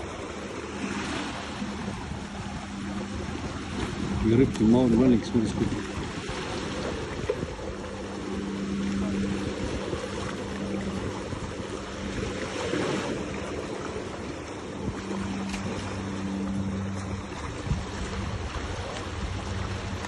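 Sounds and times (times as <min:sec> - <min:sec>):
low engine hum: 0:00.0 - 0:20.0
seaside wind: 0:00.0 - 0:20.0
water noise: 0:00.0 - 0:20.0.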